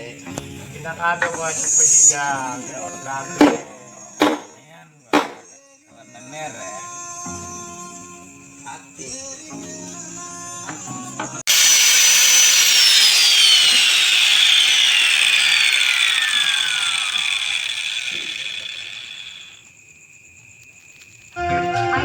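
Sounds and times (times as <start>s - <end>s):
power tool motor whining: 11.5s - 19.6s.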